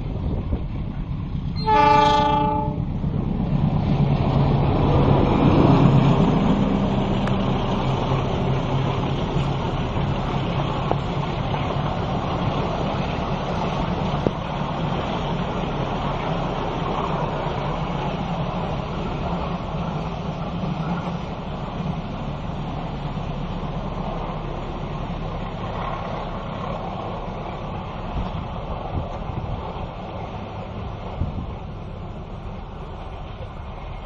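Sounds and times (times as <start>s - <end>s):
train rumbling past: 0.0s - 34.0s
train horn blast: 1.6s - 2.9s.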